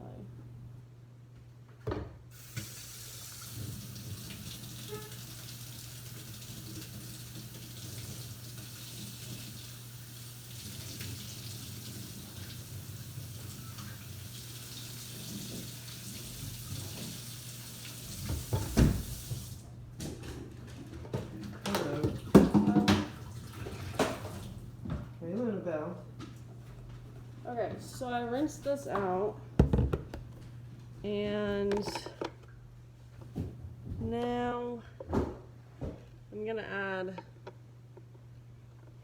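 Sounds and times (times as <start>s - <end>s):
tap water running: 2.3s - 19.7s, 21.1s - 25.0s.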